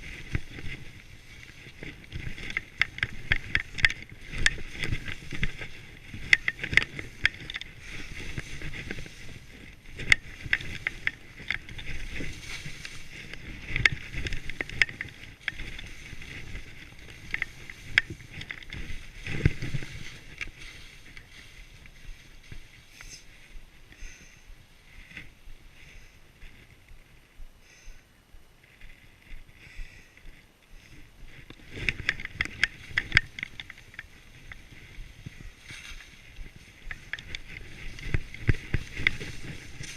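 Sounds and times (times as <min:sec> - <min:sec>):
skis swishing through snow: 0:00.0 - 0:27.1, 0:30.8 - 0:39.9
sharp clicks and knocks: 0:01.4 - 0:21.3, 0:31.5 - 0:34.7.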